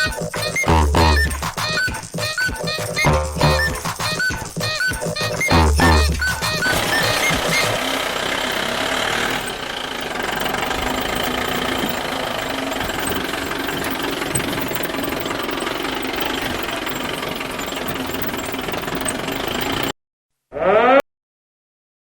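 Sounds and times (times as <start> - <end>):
small engine running rattly: 0.0 - 19.9.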